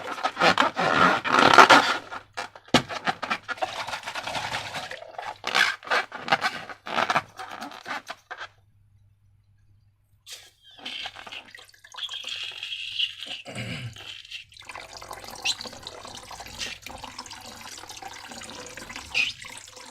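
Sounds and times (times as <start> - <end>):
slime squelching by hand: 18.8 - 19.9.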